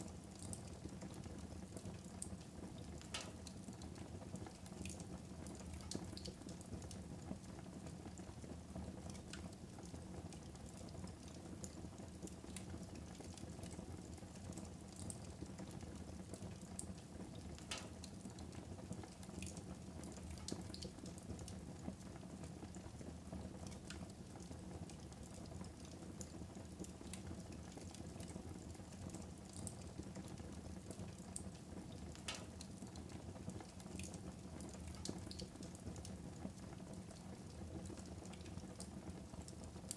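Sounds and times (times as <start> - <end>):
fire crackling and popping: 2.0 - 7.0, 16.8 - 21.6, 24.9 - 37.3
wood fire burning: 9.1 - 21.9, 23.6 - 39.9.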